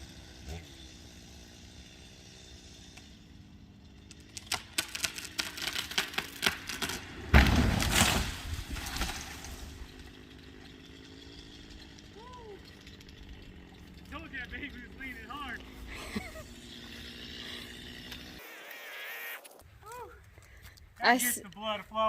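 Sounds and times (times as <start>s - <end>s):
branches rustling: 3.3s - 22.0s
tree wood cracking and snapping: 4.0s - 13.7s
tree crashing onto shed: 4.1s - 14.1s.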